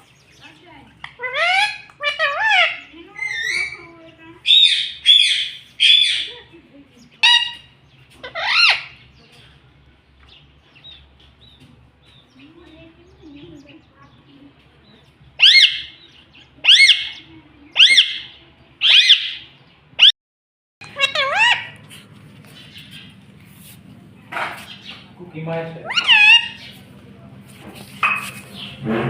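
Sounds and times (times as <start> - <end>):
parrot squawking: 1.0 - 6.5, 7.2 - 9.0, 15.4 - 20.2, 20.8 - 22.0, 25.7 - 26.8.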